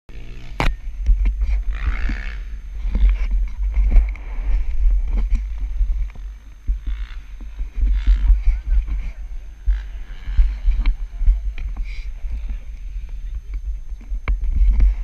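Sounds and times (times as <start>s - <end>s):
dirt bike engine: 0.1s - 15.0s
wind rumble on microphone: 0.2s - 15.0s.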